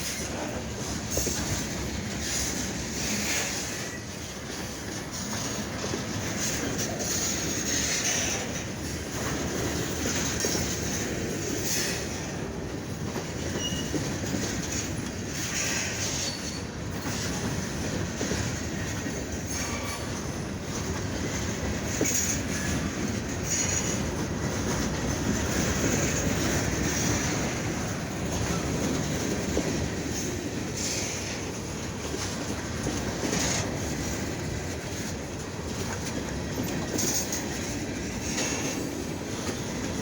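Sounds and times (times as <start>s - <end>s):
train wheels rumbling on rails: 0.0s - 40.0s
high-pitched wheel squeals: 13.5s - 14.0s.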